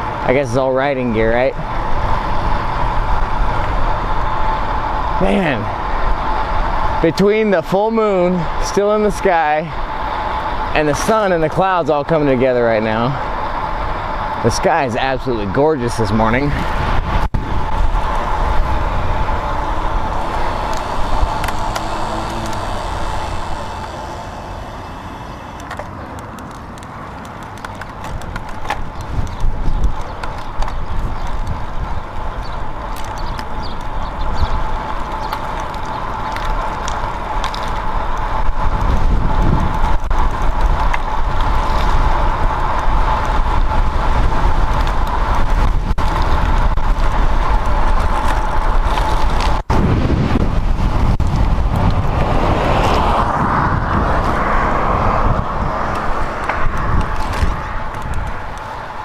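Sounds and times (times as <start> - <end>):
wind rushing over microphone: 13.2 - 59.0
tyre noise: 16.7 - 59.0
steady hum: 17.5 - 26.0.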